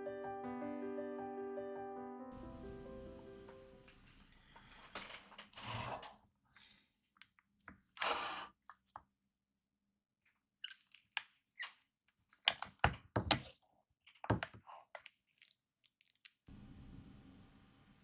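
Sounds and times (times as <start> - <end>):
faint hiss: 2.4 - 5.0, 16.5 - 18.0
hard objects knocking and clicking: 12.5 - 14.6.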